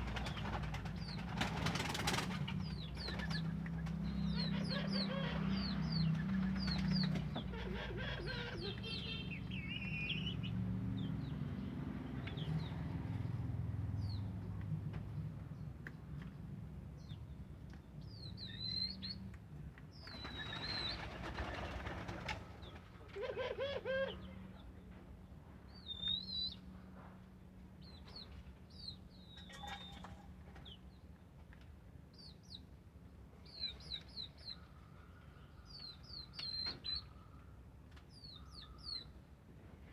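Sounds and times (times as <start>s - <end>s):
wings flapping: 0.0s - 4.0s, 20.2s - 22.7s
small birds chirping: 0.2s - 13.3s, 17.0s - 21.1s, 33.4s - 39.2s.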